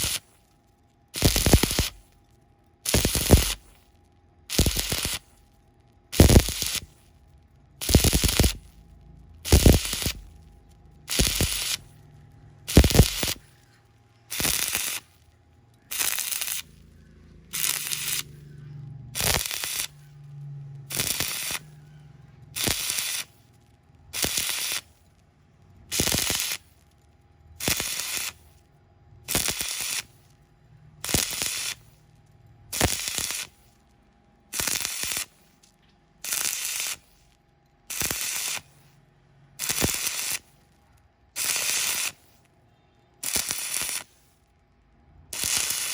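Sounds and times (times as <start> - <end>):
welding arc crackling: 0.0 - 42.6, 43.2 - 44.5, 45.2 - 45.9
faint low hum: 5.2 - 14.4, 15.0 - 22.6.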